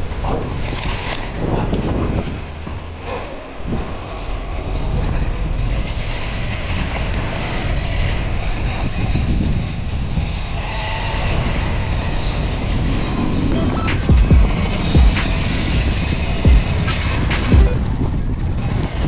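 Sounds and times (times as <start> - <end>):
wind rush on microphone: 0.0 - 2.8, 4.6 - 13.5.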